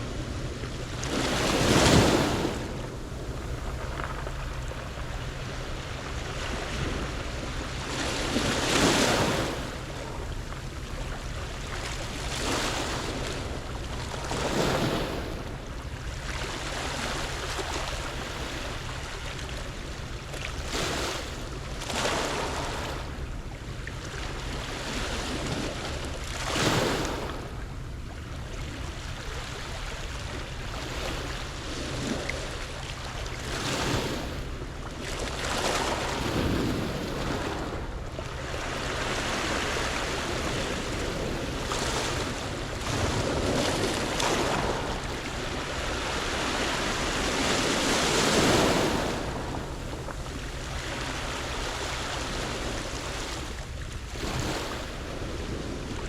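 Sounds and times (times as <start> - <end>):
waves breaking on pebble beach: 0.0 - 9.9, 32.9 - 53.6, 54.2 - 55.8
wind on microphone: 30.1 - 56.0.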